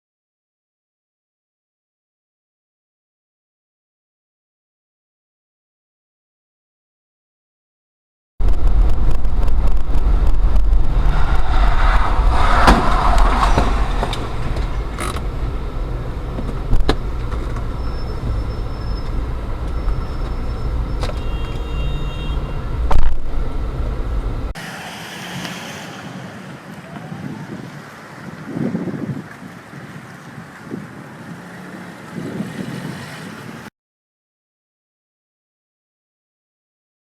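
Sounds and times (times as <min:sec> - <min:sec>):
wind noise on microphone: 0:08.4 - 0:24.6, 0:25.9 - 0:33.7
car cabin road and engine rumble: 0:08.5 - 0:27.6.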